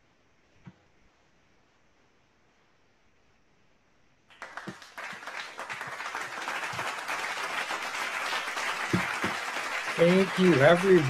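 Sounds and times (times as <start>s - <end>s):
applause: 4.3s - 11.0s.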